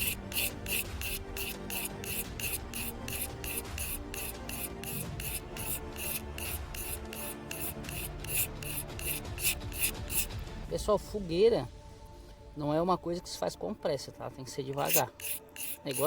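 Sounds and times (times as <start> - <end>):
metal bar scraping: 0.0 - 10.3, 14.8 - 16.0
background music: 0.0 - 16.0.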